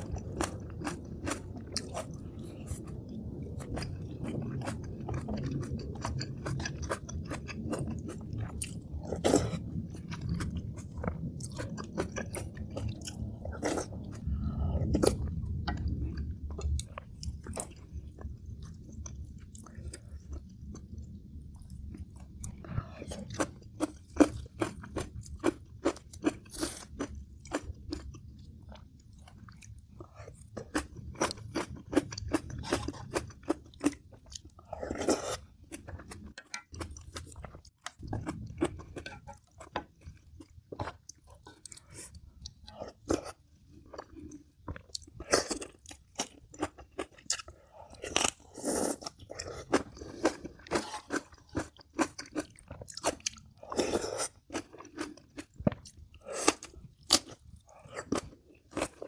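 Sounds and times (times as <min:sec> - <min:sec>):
person chewing crunchy food: 0:00.0 - 0:59.0.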